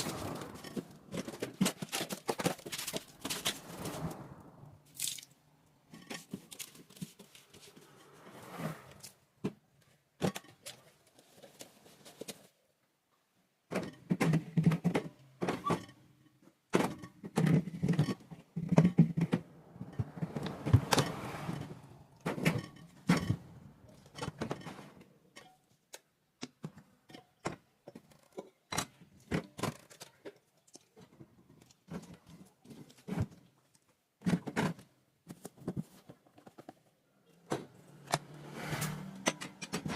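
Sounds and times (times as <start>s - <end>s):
items knocking and clunking: 0.0s - 4.3s, 5.0s - 8.2s, 9.1s - 12.6s, 13.6s - 39.9s
rubbing and clatter: 0.0s - 5.3s, 5.9s - 9.3s.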